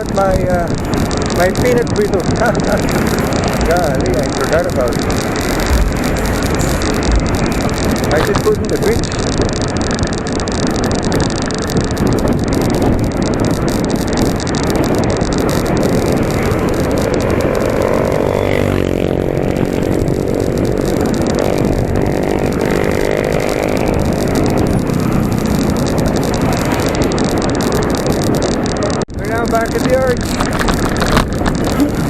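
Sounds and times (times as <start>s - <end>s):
street traffic noise: 0.0s - 32.0s
vehicle engine passing close: 0.7s - 9.3s, 13.6s - 28.3s.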